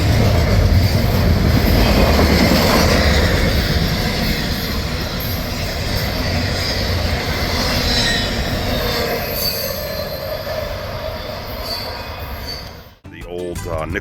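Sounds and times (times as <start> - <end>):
train wheels rumbling on rail: 0.0 - 13.0
high-pitched wheel squeal: 5.2 - 13.0.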